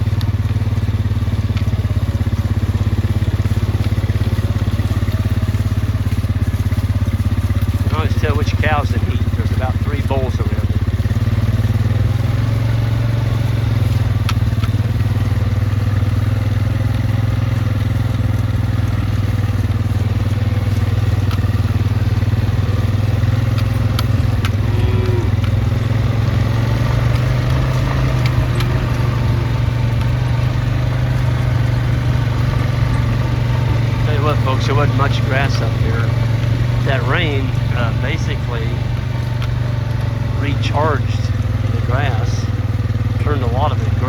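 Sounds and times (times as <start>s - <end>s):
engine droning at low speed: 0.0s - 44.0s
faint ticks: 12.6s - 25.9s.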